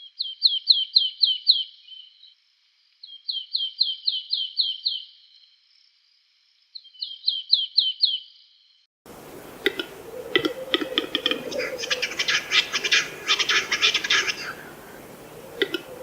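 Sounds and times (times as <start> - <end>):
songbird singing: 0.0 - 2.4, 3.0 - 5.4, 6.7 - 8.4, 9.1 - 16.0
rapid bird chirps: 9.2 - 16.0.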